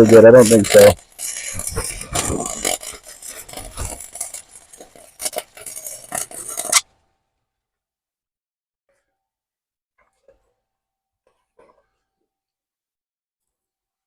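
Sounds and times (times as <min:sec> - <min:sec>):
metal scraping and clinking: 0:00.0 - 0:06.9.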